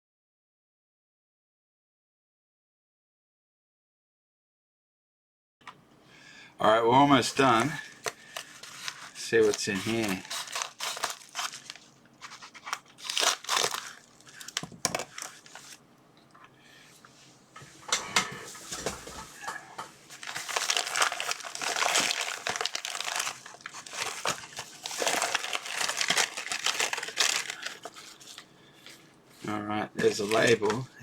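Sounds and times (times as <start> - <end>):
packaging crinkling and rustling: 7.1 - 15.8, 20.1 - 29.0, 30.0 - 30.9.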